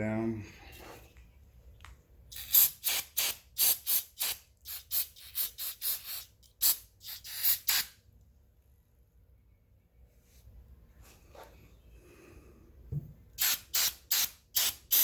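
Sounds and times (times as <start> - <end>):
aerosol spray can spurts: 2.3 - 8.0, 13.4 - 15.0.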